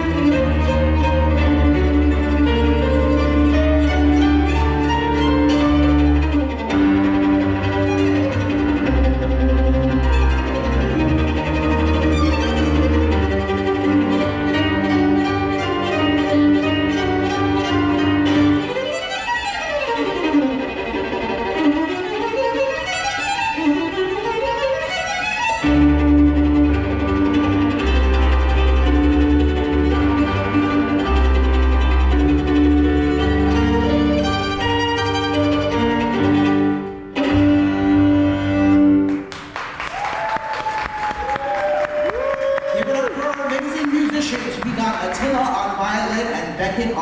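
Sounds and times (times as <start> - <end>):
violin playing: 0.0 - 40.0, 41.0 - 47.0
audience applause: 39.1 - 45.6
audience cheering: 39.4 - 45.4.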